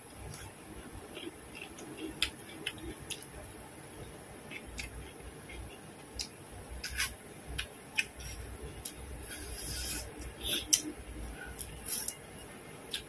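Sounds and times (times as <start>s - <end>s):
chewing and gnawing meat: 0.2s - 3.4s.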